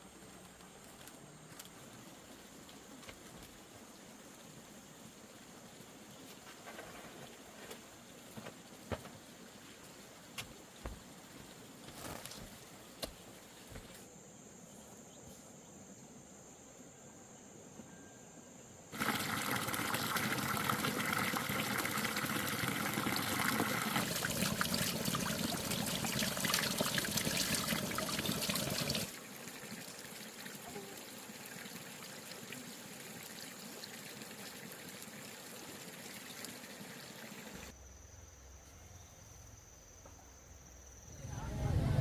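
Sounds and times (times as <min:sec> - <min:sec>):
water pouring and splashing: 0:19.0 - 0:37.7
insects chirring: 0:36.2 - 0:42.0.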